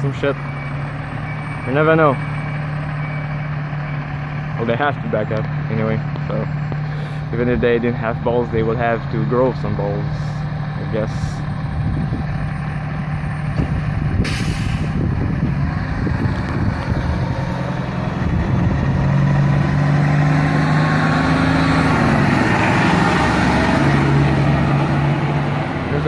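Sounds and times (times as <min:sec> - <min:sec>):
diesel engine running: 0:00.0 - 0:26.0
air brake hiss: 0:14.2 - 0:15.0.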